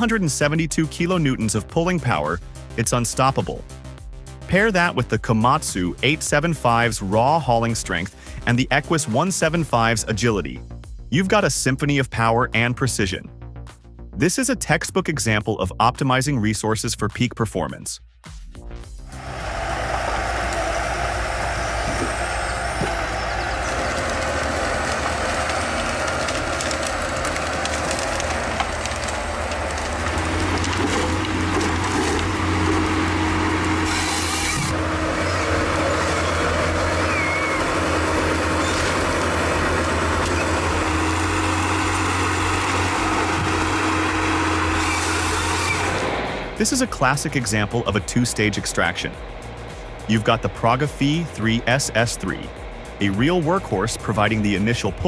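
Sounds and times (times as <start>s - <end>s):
diesel engine drone: 0.0s - 10.7s, 18.8s - 55.0s
steady machine whine: 19.0s - 54.7s.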